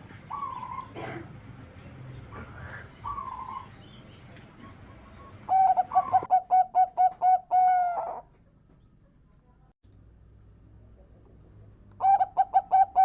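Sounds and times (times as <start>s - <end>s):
dove cooing: 0.0s - 1.5s, 2.2s - 3.8s, 4.5s - 8.3s, 12.0s - 13.0s.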